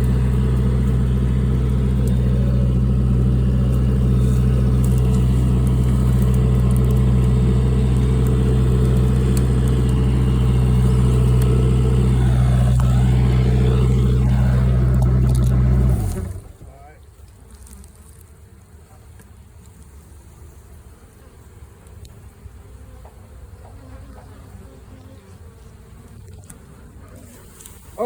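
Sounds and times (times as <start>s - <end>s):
vehicle engine idling: 0.0s - 16.8s.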